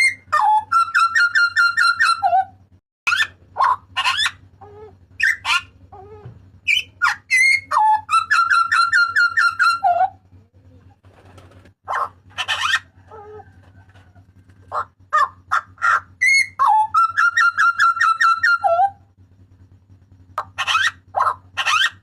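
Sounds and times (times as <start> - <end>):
bird calling: 0.0 - 19.1, 20.0 - 22.0
faint steady hum: 0.0 - 22.0.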